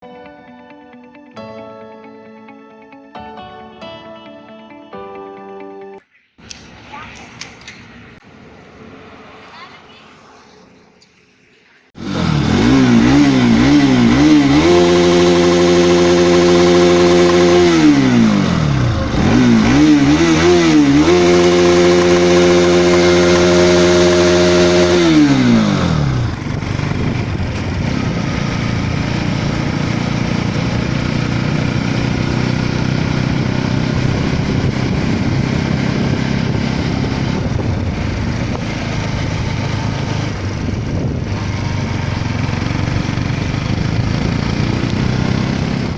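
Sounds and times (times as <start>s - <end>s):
motorcycle riding at speed: 6.6s - 45.9s
wind rushing noise: 6.7s - 15.7s, 16.6s - 30.8s, 33.2s - 45.9s
motorcycle engine revving: 12.0s - 45.9s.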